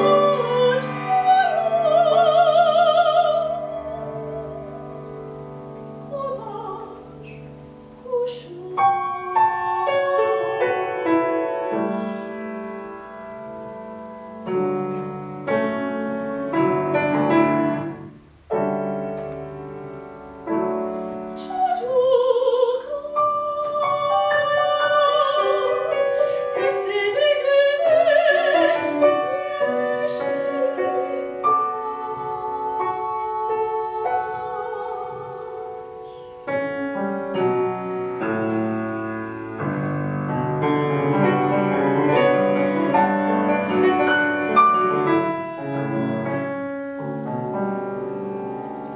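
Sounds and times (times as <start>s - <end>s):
soprano singing with vibrato: 0.0s - 13.7s, 20.6s - 37.0s
piano chords: 0.0s - 48.9s.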